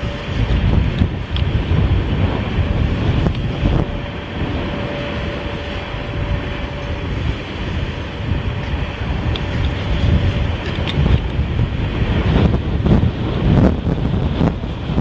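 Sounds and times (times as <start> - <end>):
faint steady tone: 0.0 - 10.6
freight train rolling past: 0.0 - 15.0
wind buffeting microphone: 0.0 - 15.0.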